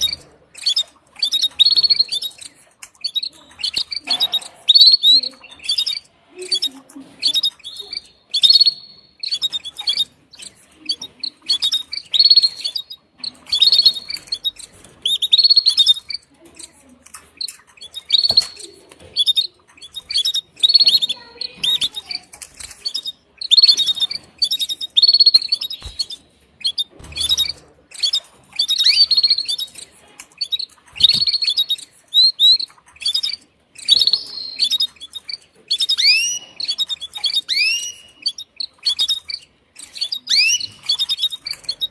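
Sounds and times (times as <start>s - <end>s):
canary chirping and trilling: 0.0s - 41.9s.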